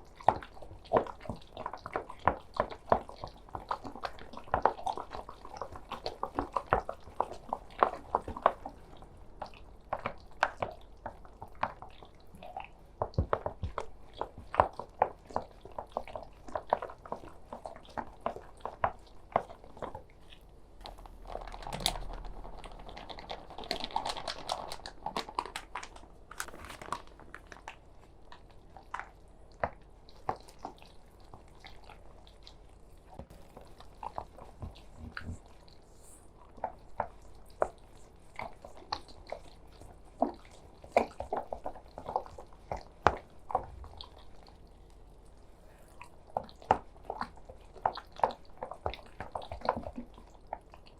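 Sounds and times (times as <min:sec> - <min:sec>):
rustling: 0:20.8 - 0:27.8.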